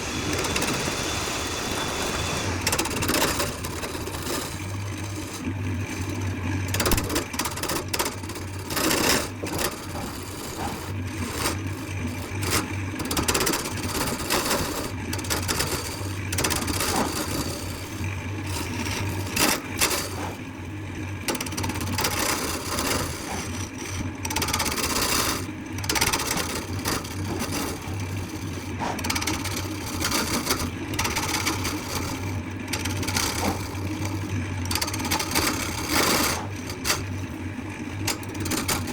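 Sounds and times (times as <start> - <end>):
power tool motor humming: 0.0 - 6.2, 21.7 - 34.2
scraping and small knocks: 2.6 - 20.4, 21.2 - 37.4, 38.0 - 38.9.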